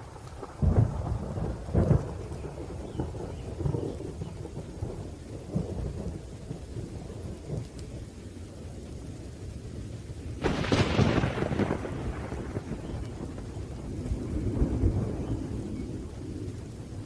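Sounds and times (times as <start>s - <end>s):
sharp thunderclap: 0.0s - 7.7s, 10.4s - 16.6s
low thunder rumble: 0.0s - 17.0s
rain: 0.0s - 17.0s.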